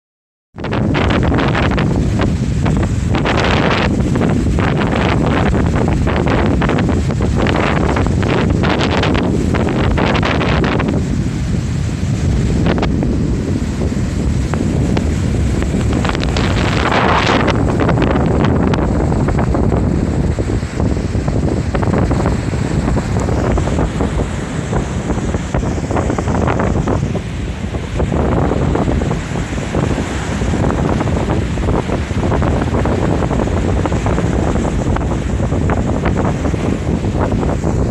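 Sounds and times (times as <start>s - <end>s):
surf breaking: 0.6s - 37.9s
wind buffeting microphone: 0.6s - 37.9s.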